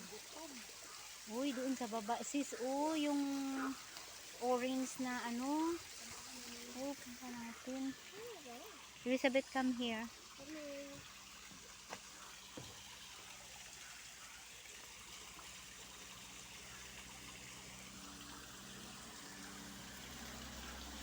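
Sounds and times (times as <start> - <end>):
water trickling: 0.0 - 21.0
faint clicks: 3.8 - 4.2.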